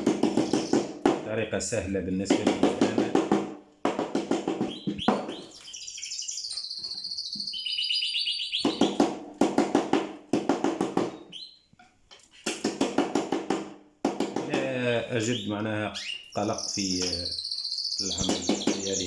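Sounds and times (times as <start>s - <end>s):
songbird trilling: 0.3s - 0.9s, 4.6s - 9.0s, 11.1s - 11.7s, 15.1s - 19.0s.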